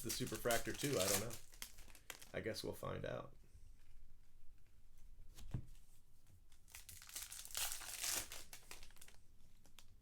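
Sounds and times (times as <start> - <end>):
wrapper crinkling and tearing: 0.0 - 2.4, 6.6 - 10.0.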